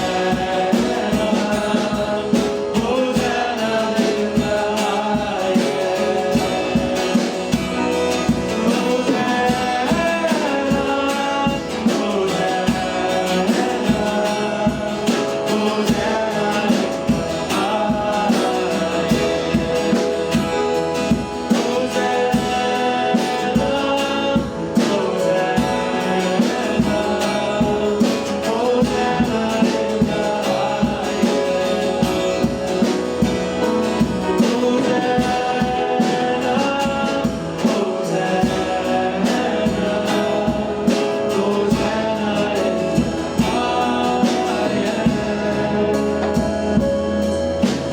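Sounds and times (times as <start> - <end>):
band music with singing: 0.0 - 47.9
steady drum beat: 0.0 - 47.9.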